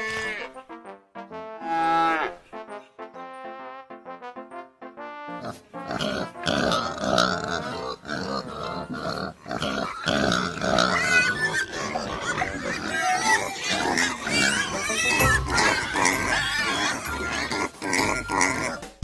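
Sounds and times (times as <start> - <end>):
pigs squealing: 0.0 - 0.6, 5.4 - 19.0
pigs grunting: 5.4 - 19.0.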